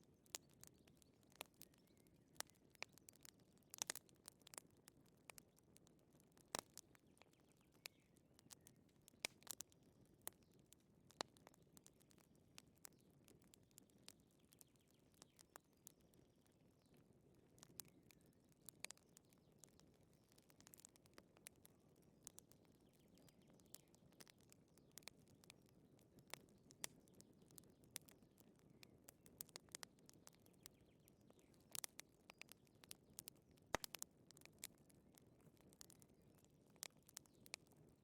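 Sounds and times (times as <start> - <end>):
low soft rumble of fire: 0.1 - 38.0
wood fire popping and snapping: 0.1 - 38.0.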